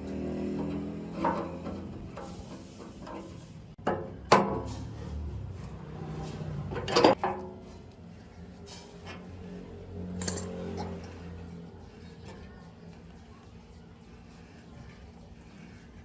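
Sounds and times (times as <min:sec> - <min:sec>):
parts and tools being moved: 0:00.5 - 0:05.0, 0:06.1 - 0:07.8, 0:10.1 - 0:11.2.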